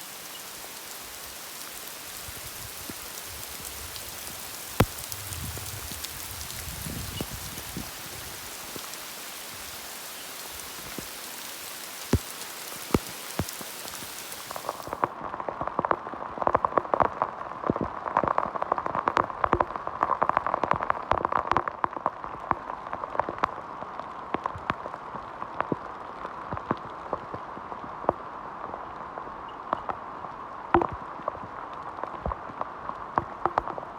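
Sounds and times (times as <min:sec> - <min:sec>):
heavy rain hiss: 0:00.0 - 0:15.1
raindrops hitting close by: 0:00.0 - 0:33.9.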